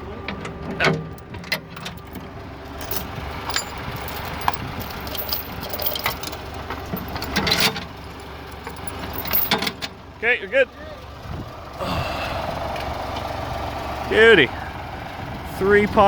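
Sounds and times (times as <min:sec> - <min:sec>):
vehicle engine idling: 0:00.0 - 0:16.0
light metallic clanks and rattles: 0:00.3 - 0:10.0.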